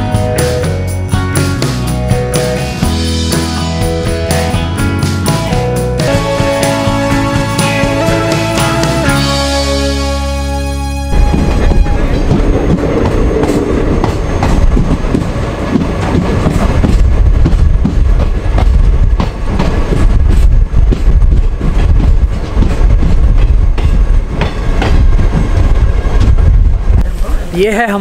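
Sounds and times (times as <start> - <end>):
train rumbling: 0.0 - 28.0
wheels clacking over rails: 11.2 - 26.4.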